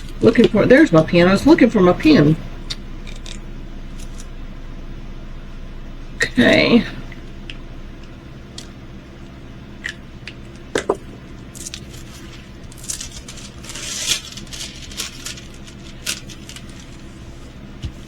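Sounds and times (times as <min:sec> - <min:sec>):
plastic and paper crinkling: 0:11.5 - 0:18.0.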